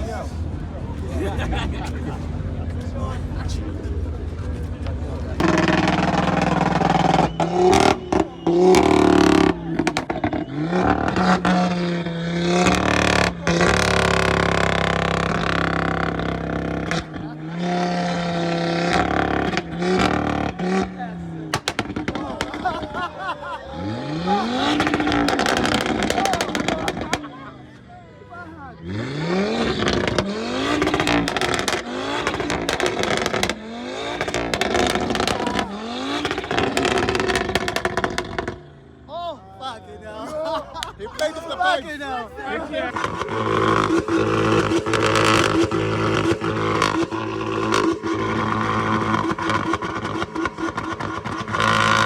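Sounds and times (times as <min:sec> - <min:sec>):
car engine revving: 0:00.0 - 0:23.1, 0:23.7 - 0:27.4, 0:28.8 - 0:39.0, 0:42.1 - 0:52.0
exhaust pops crackling: 0:04.4 - 0:17.9, 0:18.5 - 0:23.0, 0:24.5 - 0:27.3, 0:29.8 - 0:38.7, 0:42.7 - 0:52.0.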